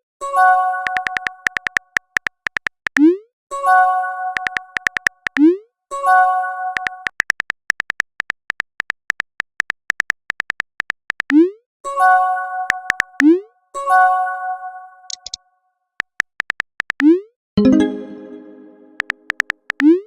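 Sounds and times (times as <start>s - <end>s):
typing clicks: 0.8s - 3.2s, 4.4s - 5.5s, 6.8s - 11.4s, 12.7s - 13.3s, 15.1s - 15.4s, 16.0s - 17.3s, 19.0s - 20.0s
bright message chime: 17.6s - 19.1s.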